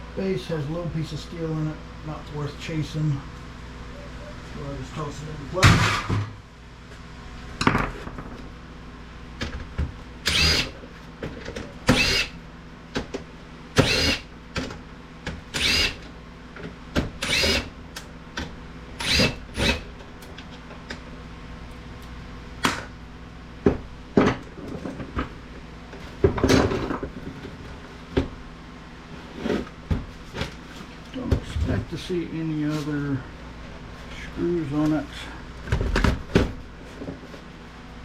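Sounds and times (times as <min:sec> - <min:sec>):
cordless drill whirring: 0:10.2 - 0:10.8, 0:11.9 - 0:12.4, 0:13.8 - 0:14.3, 0:15.6 - 0:16.0, 0:17.2 - 0:17.7, 0:19.0 - 0:19.9.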